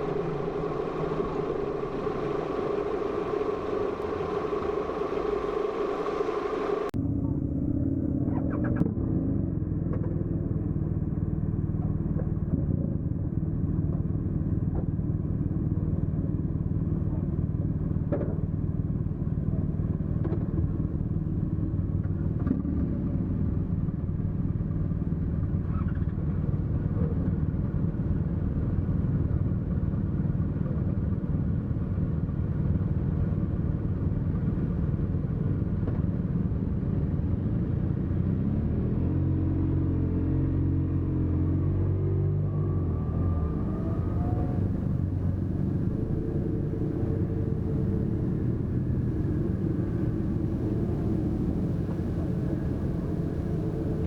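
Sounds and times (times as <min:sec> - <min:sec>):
car engine running steadily: 0:00.0 - 0:54.0.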